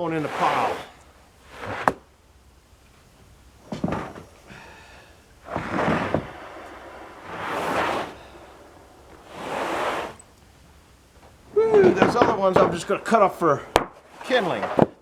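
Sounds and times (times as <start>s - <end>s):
wooden boards knocking and sliding: 0.0s - 2.1s, 3.7s - 4.8s, 5.4s - 10.2s, 11.2s - 15.0s.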